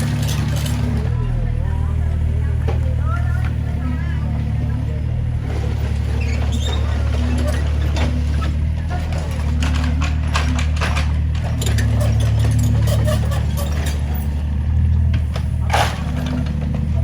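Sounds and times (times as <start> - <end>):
demolition knocks and clatter: 0.0 - 1.3, 5.4 - 17.0
excavator diesel engine running: 0.0 - 17.0.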